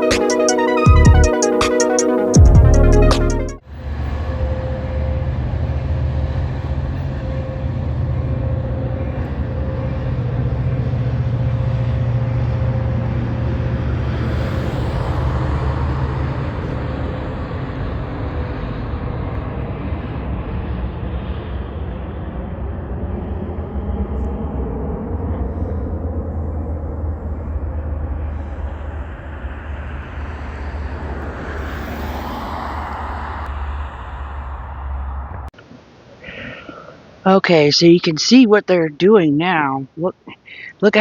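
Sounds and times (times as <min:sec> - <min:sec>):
train rumbling: 0:03.8 - 0:35.5.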